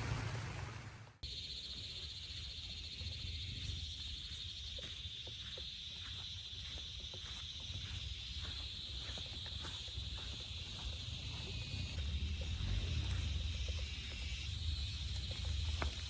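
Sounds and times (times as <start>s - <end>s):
water drips: 0.0s - 1.1s
rain: 0.0s - 1.2s
insects calling in chorus: 1.2s - 16.0s.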